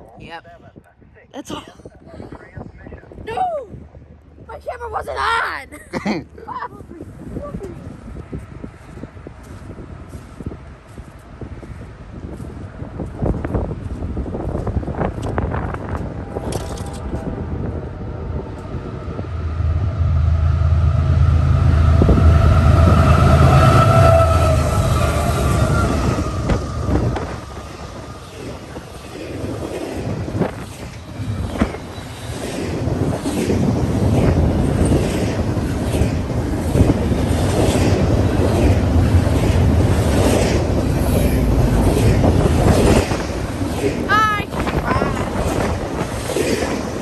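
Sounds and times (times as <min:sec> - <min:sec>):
wind buffeting microphone: 0:00.0 - 0:47.0
train rumbling past on rails: 0:03.7 - 0:47.0
wheels ringing tone: 0:15.7 - 0:33.4.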